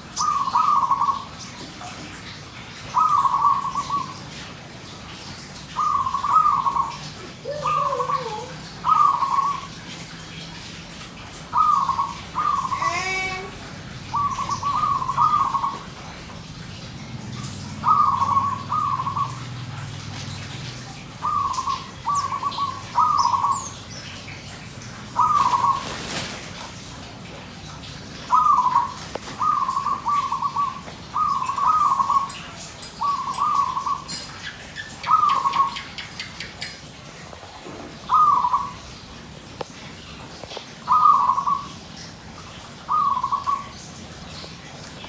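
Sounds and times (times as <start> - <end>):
dove cooing: 5.8 - 9.7, 11.5 - 16.1, 17.5 - 19.9, 21.0 - 23.8, 25.0 - 26.4, 28.2 - 32.4, 38.0 - 38.8, 40.9 - 41.7.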